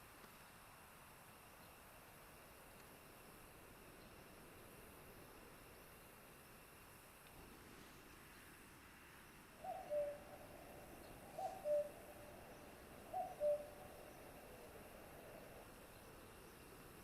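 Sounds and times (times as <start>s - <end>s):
bird calling two low notes: 9.6s - 10.2s, 11.3s - 12.0s.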